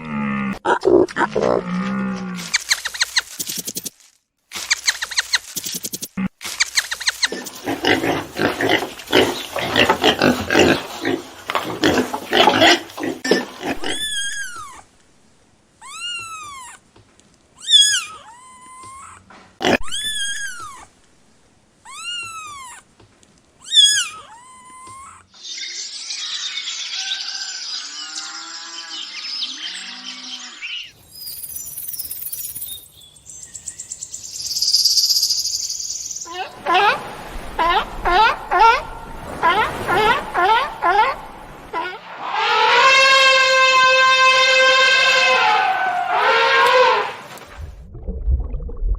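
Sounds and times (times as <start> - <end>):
animal calls rising and falling: 23.6 - 30.9, 36.3 - 47.4
long noisy animal call: 36.3 - 47.2.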